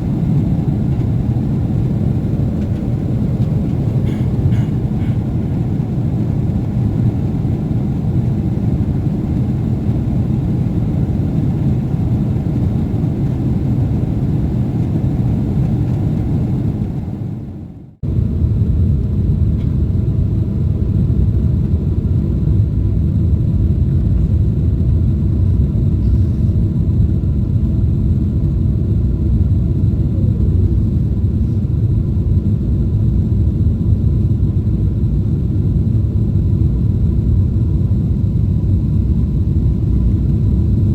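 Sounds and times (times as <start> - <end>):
jet engine rumble in cabin: 0.0 - 40.9.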